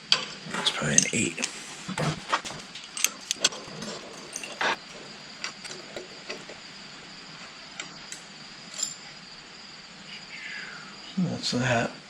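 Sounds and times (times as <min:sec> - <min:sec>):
wrench clicking on metal: 0:08.1 - 0:09.0.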